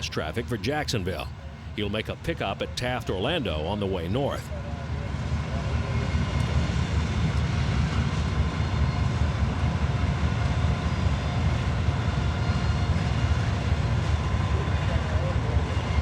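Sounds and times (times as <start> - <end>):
freight train rumbling past: 0.0 - 16.0.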